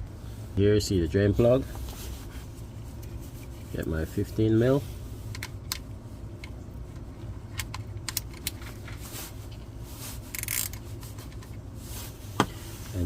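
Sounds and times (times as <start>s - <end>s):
steady low hum: 0.0s - 13.0s
socket wrench metal clicks: 7.5s - 8.6s.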